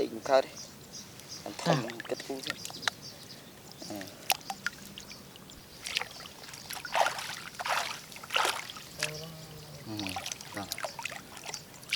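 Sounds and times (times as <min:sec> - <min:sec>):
water splashing: 0:04.0 - 0:11.9.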